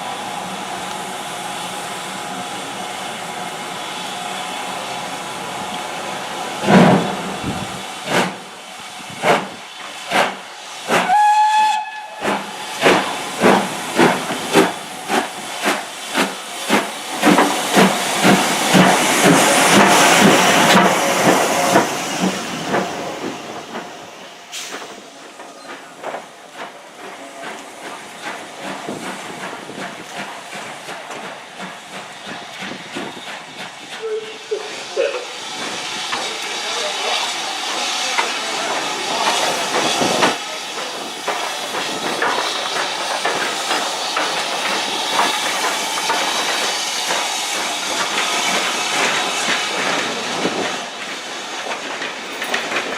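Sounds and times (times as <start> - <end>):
steam locomotive chuffing: 0.0 - 52.9
steam whistle blast: 10.9 - 12.3, 34.0 - 35.3.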